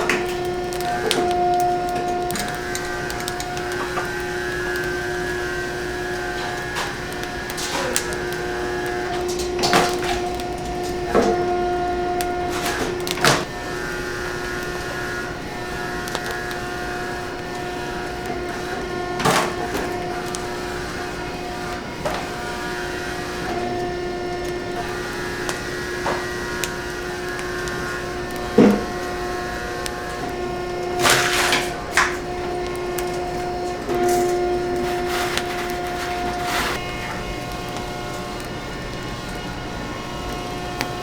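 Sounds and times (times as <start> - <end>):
utensils knocking and clattering: 0.0 - 13.5, 28.1 - 29.2, 30.1 - 37.2
kitchen machinery humming: 0.0 - 41.0.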